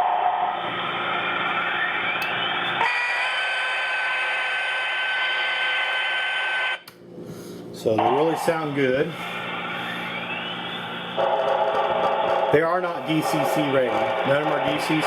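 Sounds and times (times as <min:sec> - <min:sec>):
steam whistle blast over hiss: 0:02.8 - 0:06.6.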